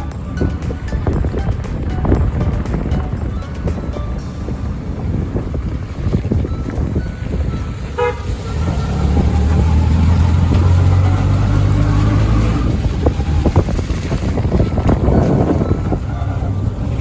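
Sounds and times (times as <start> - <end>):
vehicle engine running: 0.0 - 17.0
wind and road noise: 0.0 - 17.0
short horn toot: 7.6 - 8.9.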